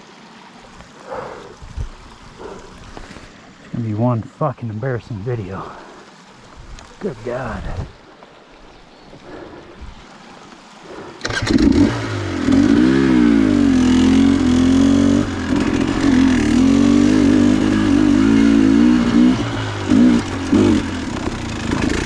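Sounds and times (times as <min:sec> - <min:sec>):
dirt bike engine revving: 0:10.9 - 0:22.0.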